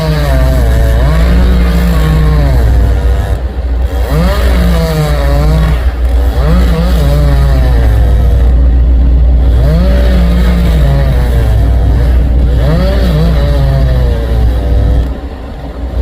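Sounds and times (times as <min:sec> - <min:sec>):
chainsaw cutting: 0:00.0 - 0:16.0.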